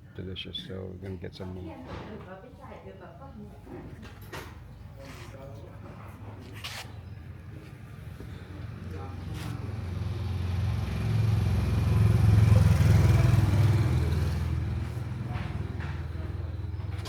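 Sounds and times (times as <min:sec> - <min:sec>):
vehicle engine driving past: 0:07.3 - 0:17.0.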